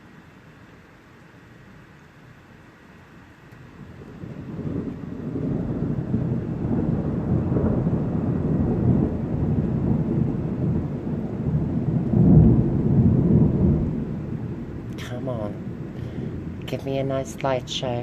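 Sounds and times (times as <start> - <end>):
thunder rumbling: 3.6 - 18.0.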